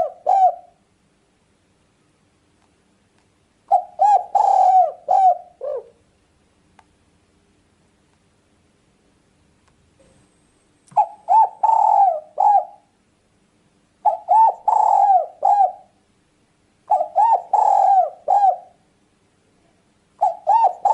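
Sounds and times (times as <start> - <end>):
dove cooing: 0.0 - 0.8, 3.7 - 6.0, 11.0 - 13.0, 14.0 - 16.0, 16.9 - 18.8, 20.2 - 20.9.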